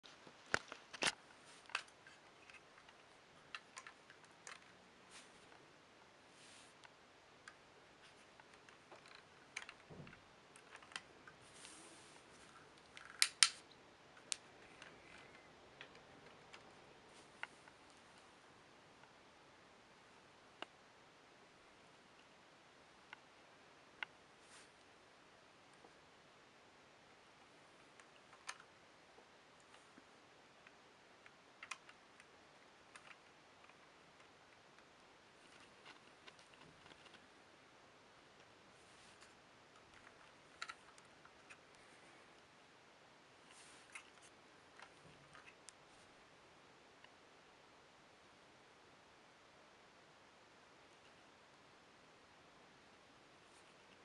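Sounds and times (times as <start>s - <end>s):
faint scattered clicks: 29.6s - 37.2s.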